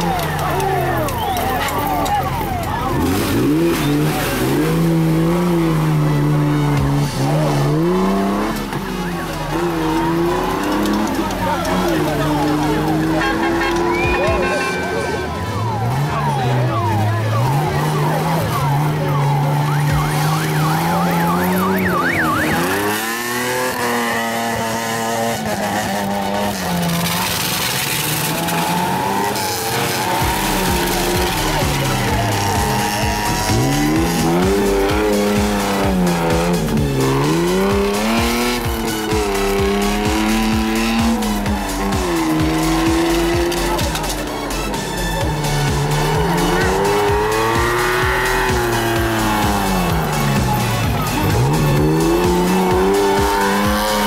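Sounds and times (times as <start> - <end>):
off-road buggy engine revving: 0.0 - 54.0
siren-like wail: 13.9 - 25.0.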